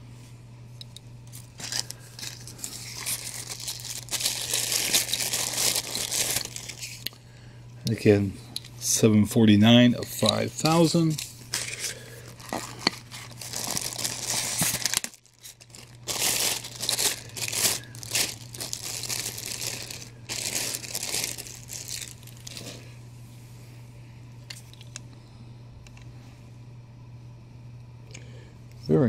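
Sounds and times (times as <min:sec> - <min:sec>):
faint steady hum: 0:00.0 - 0:29.0
plastic packaging crinkling and tearing: 0:01.3 - 0:07.1, 0:10.0 - 0:22.9.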